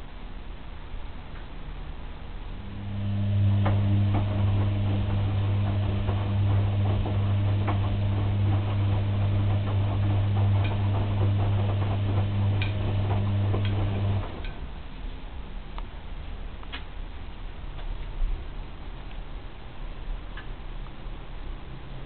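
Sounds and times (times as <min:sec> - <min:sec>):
washing machine motor hum: 0:01.8 - 0:15.0.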